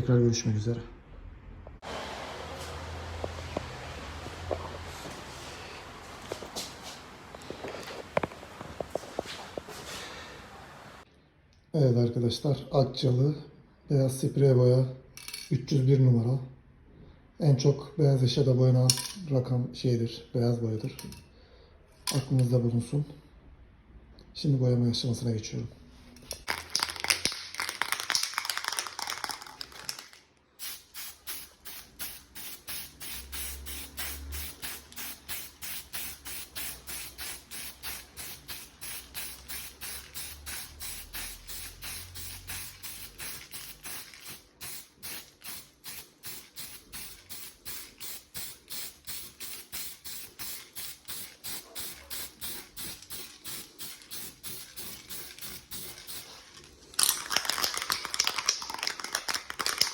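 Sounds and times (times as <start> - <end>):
spray paint can hissing: 30.6 - 56.4.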